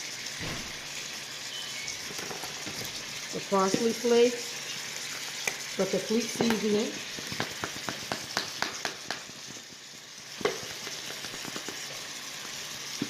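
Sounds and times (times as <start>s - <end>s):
meat sizzling in a frying pan: 0.0s - 13.0s
sharp crackles and clicks: 5.2s - 13.0s.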